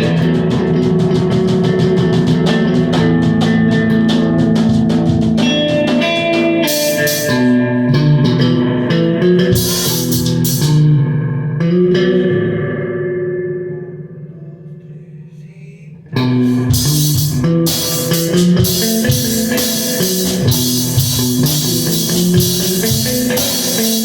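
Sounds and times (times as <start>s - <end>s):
drum kit hits: 0.0s - 8.7s, 9.4s - 10.8s, 16.4s - 24.0s
electric guitar playing: 0.0s - 15.0s, 15.9s - 24.0s.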